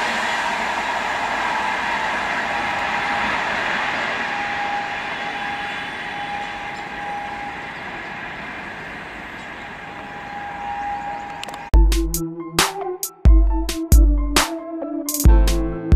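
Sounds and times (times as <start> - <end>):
thin whine: 0.0 - 11.7
train wheels on rails: 0.0 - 11.7.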